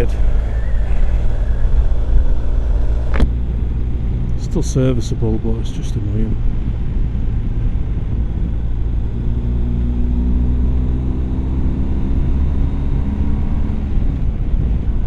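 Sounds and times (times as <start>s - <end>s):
motorcycle engine rumbling: 0.0s - 15.0s
wind noise: 0.0s - 15.0s.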